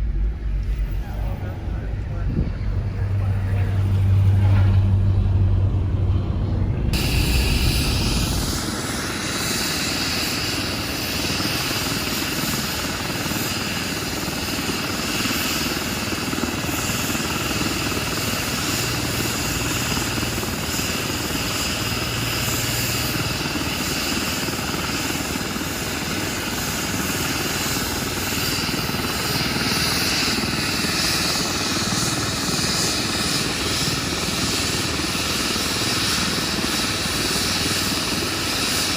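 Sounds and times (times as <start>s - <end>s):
heavy low rumble: 0.0s - 9.3s
helicopter running: 0.0s - 38.9s.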